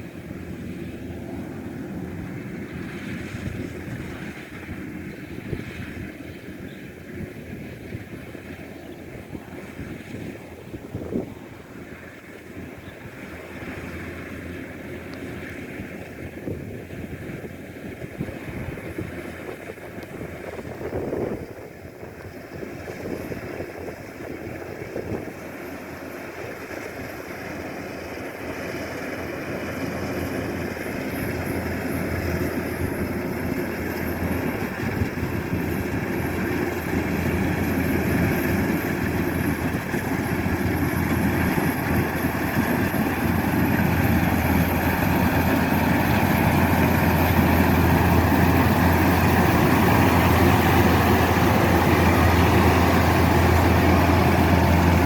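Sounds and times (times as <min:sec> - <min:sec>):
diesel engine humming: 0:25.7 - 0:55.0.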